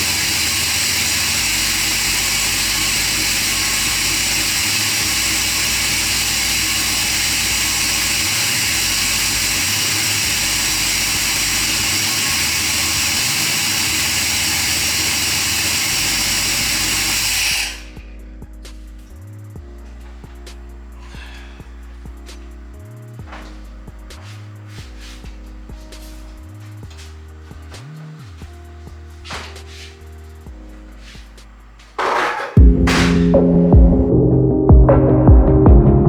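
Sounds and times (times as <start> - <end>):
car engine running: 0.0 - 19.0, 30.5 - 34.2
background music: 17.6 - 36.0.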